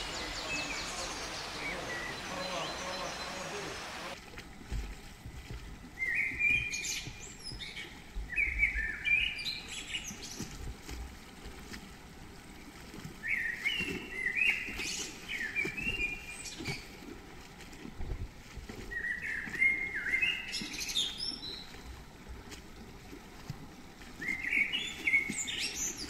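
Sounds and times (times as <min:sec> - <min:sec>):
songbird chirping: 0:00.0 - 0:04.2.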